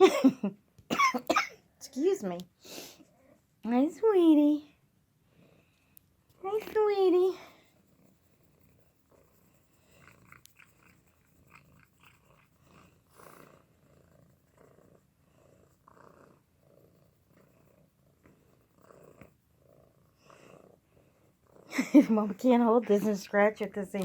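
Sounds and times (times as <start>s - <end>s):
cat purring: 4.5s - 24.0s.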